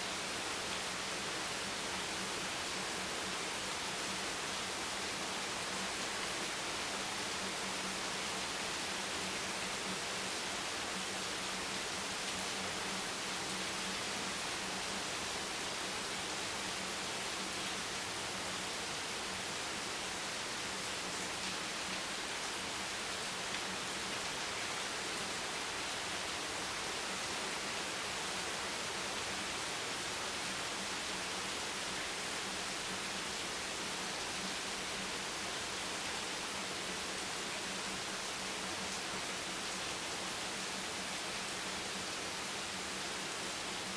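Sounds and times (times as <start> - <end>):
steady rain hiss: 0.0 - 43.9.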